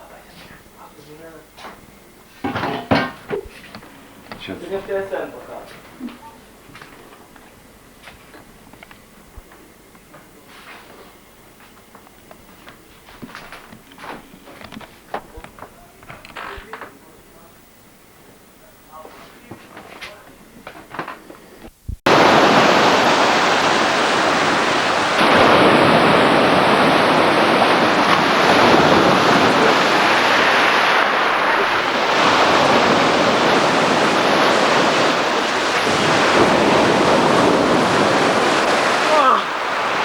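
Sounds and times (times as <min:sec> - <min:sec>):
sea waves washing onto shore: 0:22.1 - 0:40.0.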